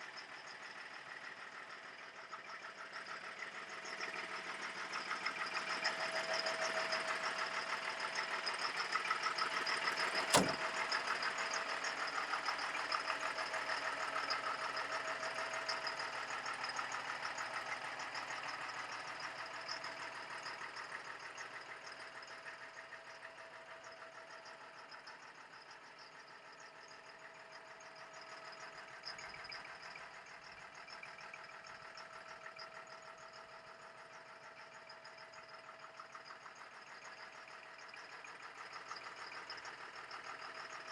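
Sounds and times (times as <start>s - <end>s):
diesel truck engine clattering: 9.3s - 11.0s
sharp click: 10.0s - 10.6s.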